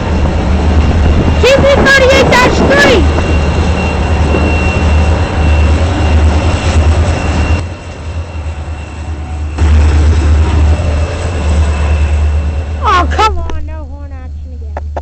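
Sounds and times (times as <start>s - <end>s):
train rumbling past: 0.0s - 15.0s
high squeal: 2.6s - 13.1s.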